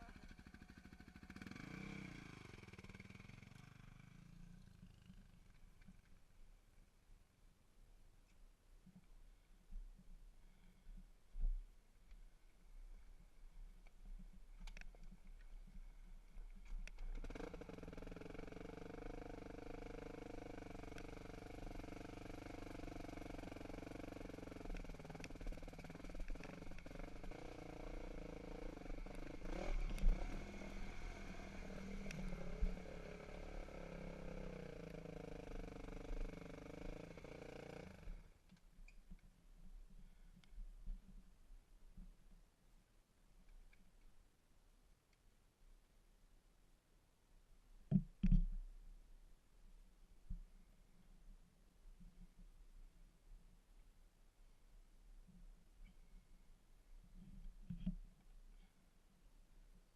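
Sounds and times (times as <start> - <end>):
dirt bike engine idling: 0.0 - 6.1, 17.0 - 38.4.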